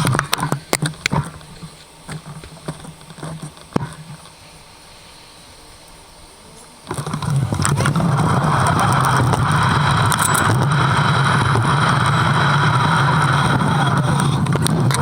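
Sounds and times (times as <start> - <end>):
scattered clicks: 0.0 - 4.4, 6.6 - 15.0
vehicle running hum: 6.4 - 15.0.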